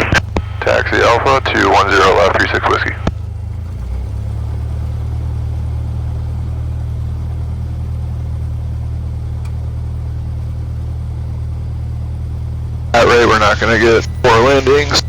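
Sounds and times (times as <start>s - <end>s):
airplane engine drone: 0.0s - 15.0s.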